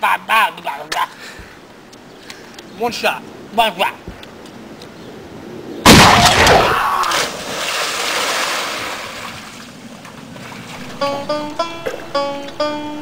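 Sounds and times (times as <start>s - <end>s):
loud splash into pool: 5.9s - 9.7s
churning water: 5.9s - 10.8s
plucked banjo tune: 10.8s - 13.0s.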